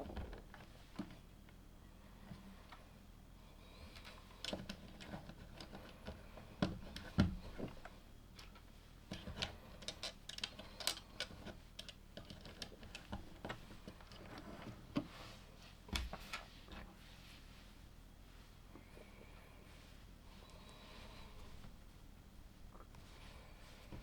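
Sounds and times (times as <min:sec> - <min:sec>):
plastic toy bricks clicking: 0:09.8 - 0:11.0.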